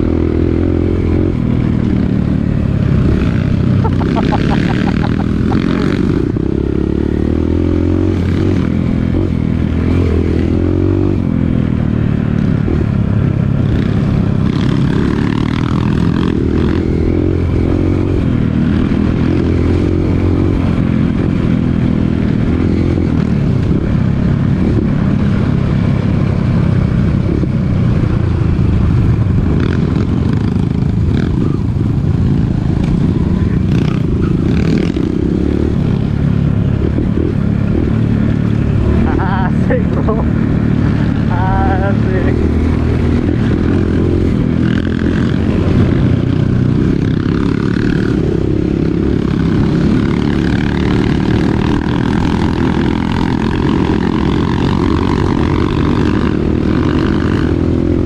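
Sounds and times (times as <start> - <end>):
dirt bike engine revving: 0.0 - 11.2, 32.2 - 58.0.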